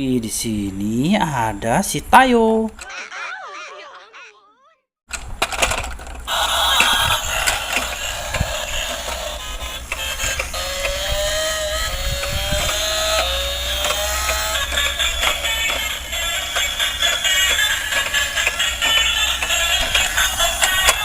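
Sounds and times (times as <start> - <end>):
toy motor and gears whirring: 5.5 - 21.0.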